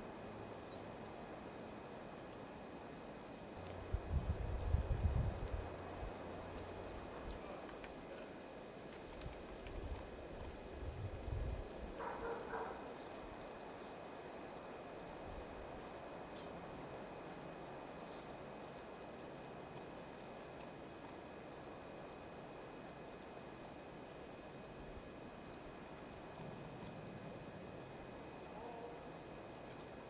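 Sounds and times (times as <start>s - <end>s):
steady outdoor hiss: 0.0s - 30.0s
small birds chipping: 4.4s - 10.6s, 11.3s - 14.0s, 15.1s - 23.1s.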